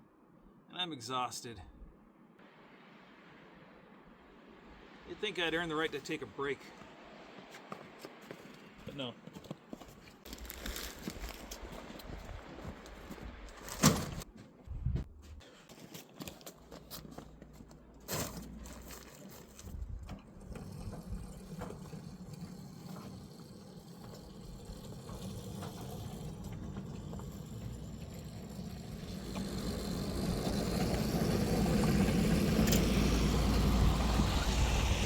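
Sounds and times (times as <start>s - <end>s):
engine running: 19.9s - 35.0s.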